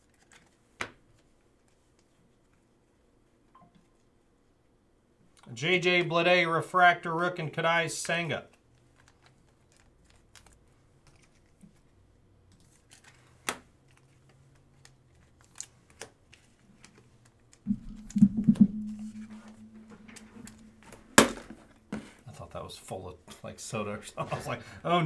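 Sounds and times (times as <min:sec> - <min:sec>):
low steady hum: 0:17.7 - 0:22.2.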